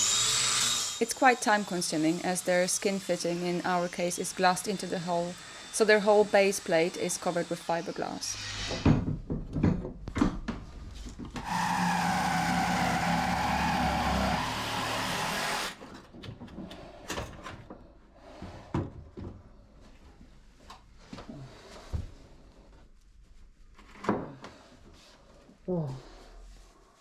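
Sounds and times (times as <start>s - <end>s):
power tool running: 0.0s - 8.9s, 11.4s - 15.8s.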